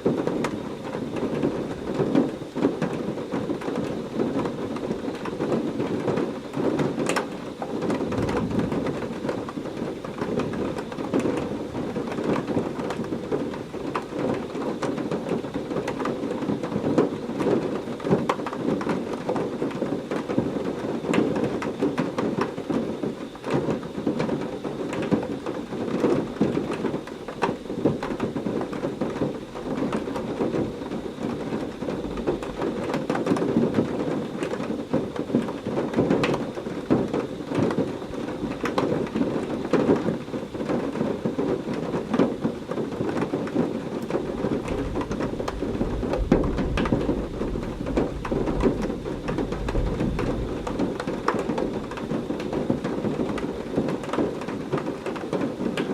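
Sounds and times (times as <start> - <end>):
heavy rain: 0.0 - 55.9
distant thunder rumbles: 7.9 - 9.2, 44.1 - 53.8.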